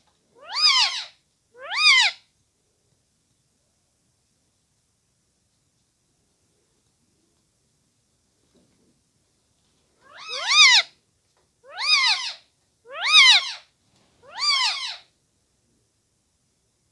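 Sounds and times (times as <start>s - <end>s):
cat meowing: 10.1s - 10.8s, 11.7s - 13.6s, 14.2s - 15.0s.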